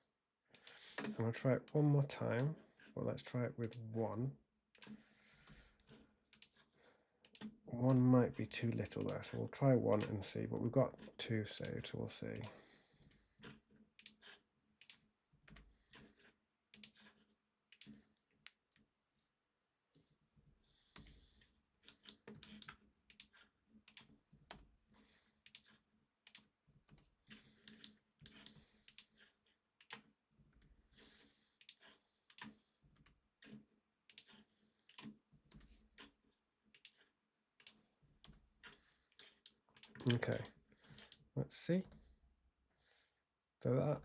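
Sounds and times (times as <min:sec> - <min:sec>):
mouse and keyboard clicking: 0:04.8 - 0:08.1, 0:08.9 - 0:09.2, 0:09.9 - 0:10.7, 0:16.7 - 0:18.0, 0:25.4 - 0:30.1, 0:31.6 - 0:36.2, 0:36.8 - 0:41.2.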